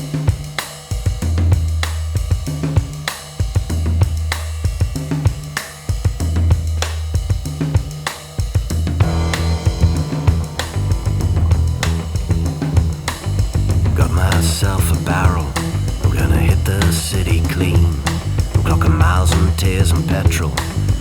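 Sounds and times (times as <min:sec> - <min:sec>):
rock drum kit: 0:00.0 - 0:21.0
cymbal hits: 0:09.0 - 0:14.0
sustained low bass notes: 0:09.0 - 0:21.0.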